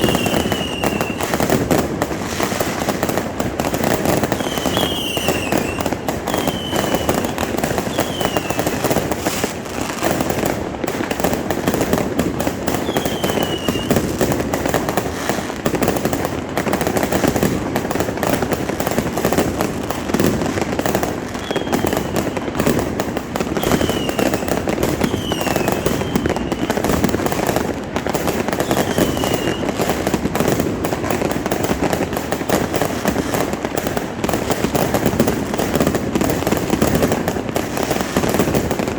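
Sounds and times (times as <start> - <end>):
falling firework whistles: 0.0 - 10.3, 12.7 - 14.3, 20.0 - 30.1
fireworks crackling: 0.0 - 38.9.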